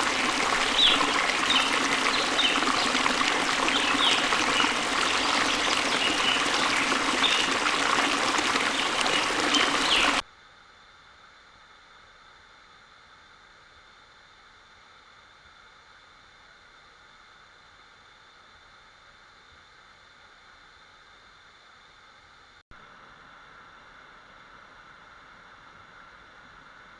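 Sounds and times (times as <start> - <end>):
waterfall rushing: 0.0 - 10.2.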